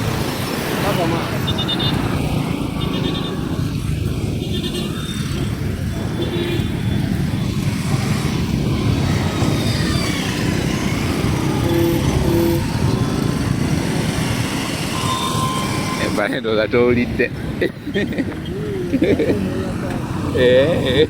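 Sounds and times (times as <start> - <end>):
motorcycle engine rumbling: 0.0 - 21.0
road and wind noise: 0.0 - 21.0
horn beeps: 1.4 - 3.6, 11.4 - 13.0, 14.8 - 16.3.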